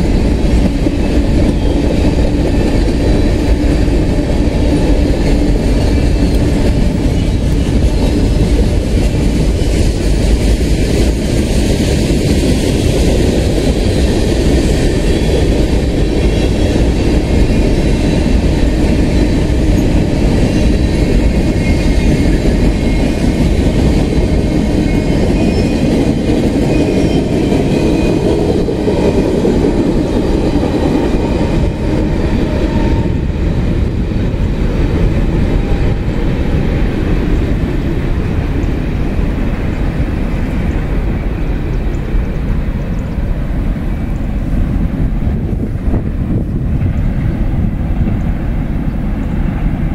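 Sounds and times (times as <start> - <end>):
steel wheels rumbling on track: 0.0 - 49.9.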